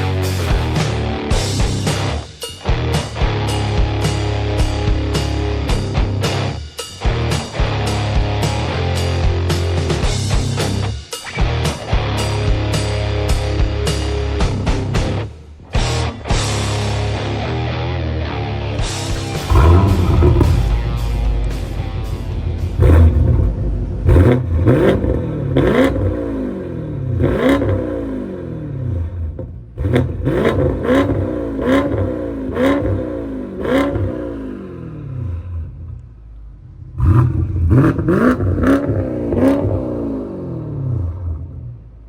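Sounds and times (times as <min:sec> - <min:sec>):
car engine revving: 0:18.8 - 0:42.0.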